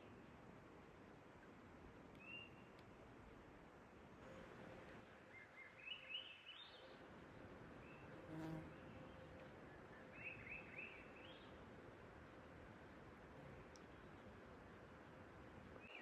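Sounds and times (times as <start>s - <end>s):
faint outdoor hiss: 0.0s - 16.0s
songbird singing: 5.3s - 7.1s, 7.8s - 11.6s, 15.8s - 16.0s.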